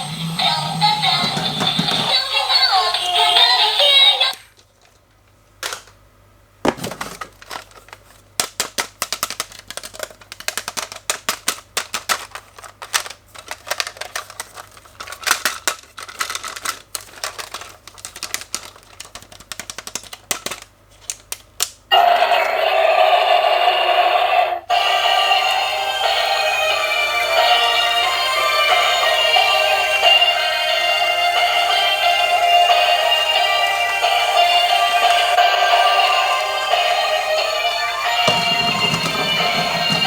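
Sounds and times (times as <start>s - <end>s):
song with singing: 0.0s - 4.3s, 24.7s - 40.0s
rapid irregular clicking and clattering: 7.0s - 21.4s
click and knock: 38.3s - 40.0s.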